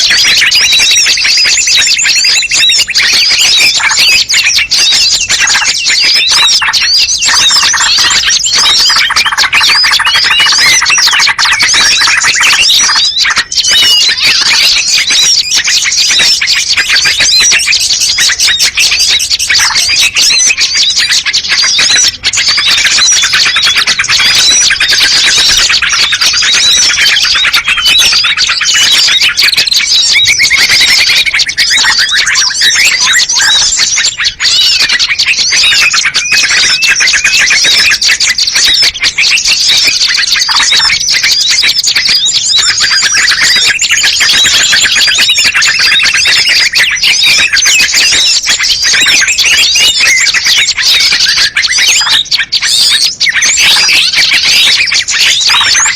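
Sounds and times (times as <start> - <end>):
chorus of songbirds chirping: 0.0 - 55.9.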